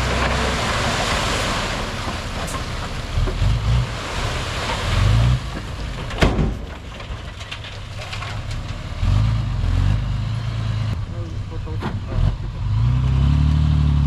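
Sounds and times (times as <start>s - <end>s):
bulldozer diesel engine rumbling: 0.0s - 14.0s.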